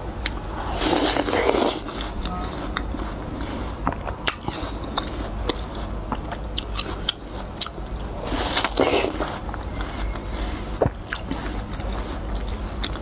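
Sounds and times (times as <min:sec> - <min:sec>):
watermelon bites and chewing: 0:00.2 - 0:13.0.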